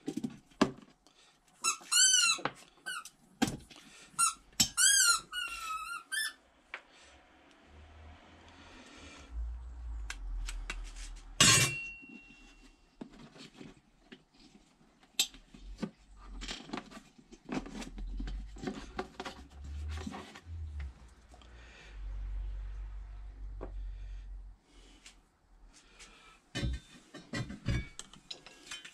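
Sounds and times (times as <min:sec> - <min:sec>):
sharp metallic clank: 0:11.4 - 0:12.6
metal tools clinking: 0:11.4 - 0:12.7.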